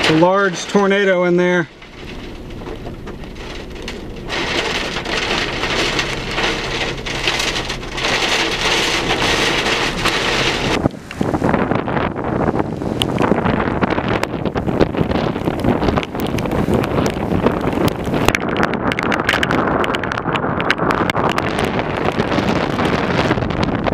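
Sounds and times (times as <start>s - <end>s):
heavy rain: 0.0s - 23.9s
wind: 0.0s - 23.9s.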